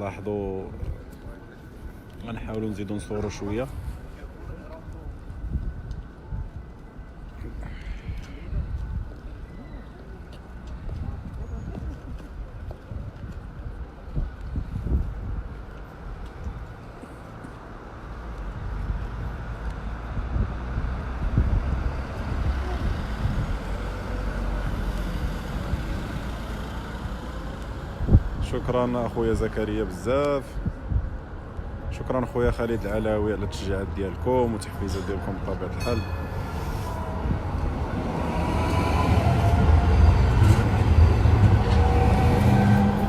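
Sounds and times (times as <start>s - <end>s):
road traffic rumble: 0.0s - 43.0s
wind buffeting microphone: 0.7s - 17.0s, 18.1s - 43.0s
train rumble: 34.8s - 43.0s.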